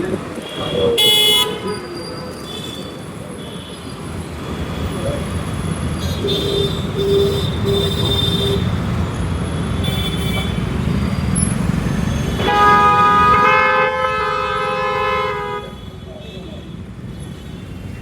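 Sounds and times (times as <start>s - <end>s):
low traffic rumble: 0.0s - 18.0s
vehicle horns honking: 0.4s - 1.9s, 6.0s - 8.9s, 9.8s - 10.8s, 12.3s - 18.0s.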